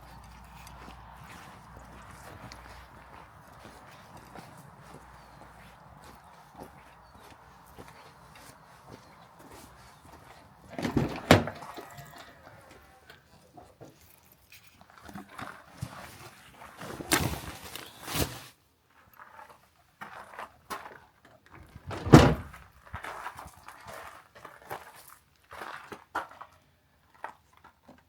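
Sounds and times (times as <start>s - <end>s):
handling sounds: 0.0s - 18.5s
knocks and thuds: 21.9s - 22.6s.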